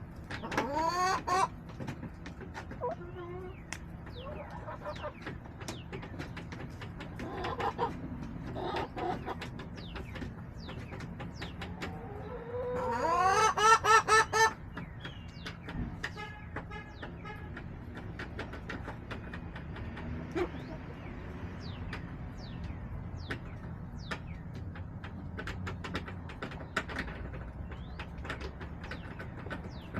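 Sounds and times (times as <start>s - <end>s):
chickens clucking: 0.0s - 29.9s
small birds chirping: 0.0s - 29.9s
chicken squawking call: 12.1s - 14.6s.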